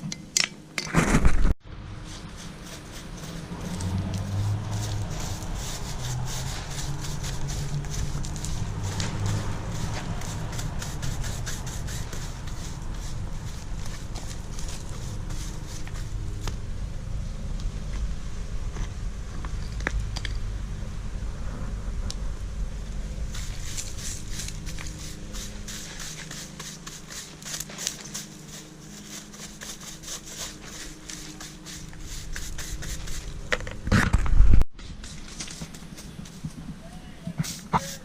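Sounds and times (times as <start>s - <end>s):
low rumble: 1.6s - 26.0s
hand tool scraping concrete: 2.0s - 16.2s, 23.3s - 33.4s, 37.3s - 38.0s.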